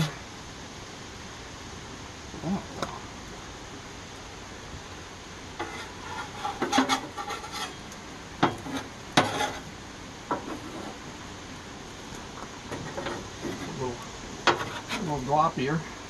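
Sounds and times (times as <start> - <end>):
spatula scraping frying pan: 5.6 - 9.7, 10.4 - 11.0, 12.7 - 15.2.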